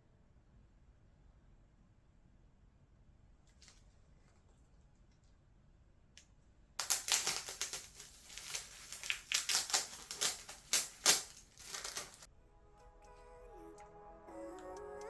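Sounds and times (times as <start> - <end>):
crackling crunching rustle: 6.8 - 12.3.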